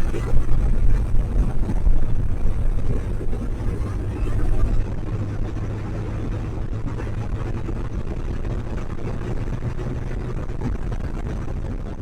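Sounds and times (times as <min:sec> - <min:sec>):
motorcycle engines running: 0:00.0 - 0:12.0.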